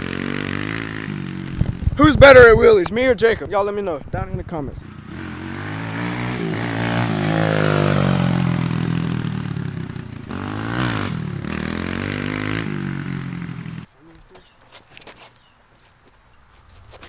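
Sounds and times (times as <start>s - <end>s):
dirt bike engine revving: 0.0s - 3.3s, 4.7s - 13.9s.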